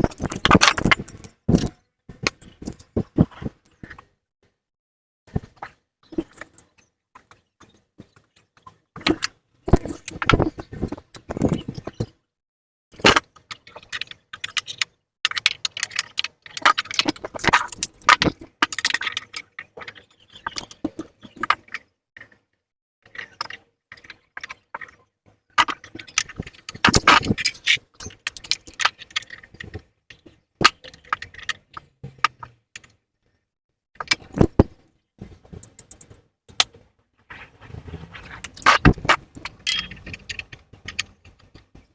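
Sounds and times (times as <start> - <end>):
metal tools clinking: 38.4 - 41.1.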